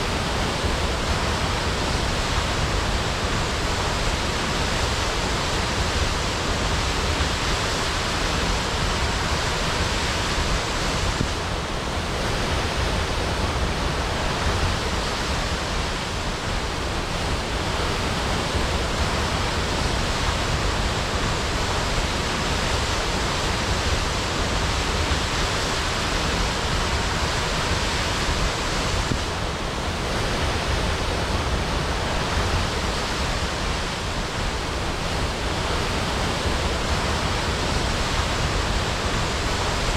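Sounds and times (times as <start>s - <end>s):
waterfall crashing: 0.0s - 39.9s.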